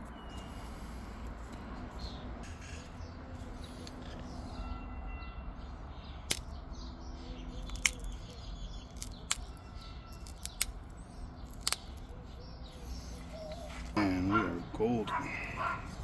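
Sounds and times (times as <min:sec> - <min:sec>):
stone flaking clicks: 0:06.2 - 0:06.6, 0:07.5 - 0:12.4.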